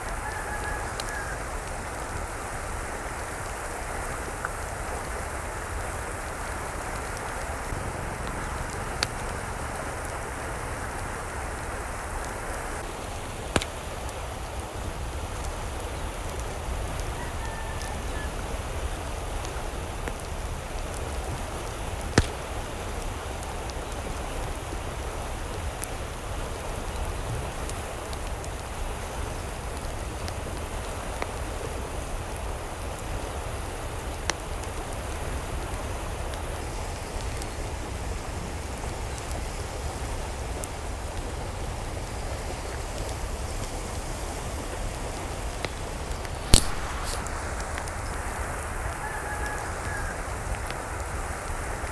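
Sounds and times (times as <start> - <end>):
water noise: 0.0 - 30.8, 38.4 - 51.9
sharp clicks: 46.5 - 47.3.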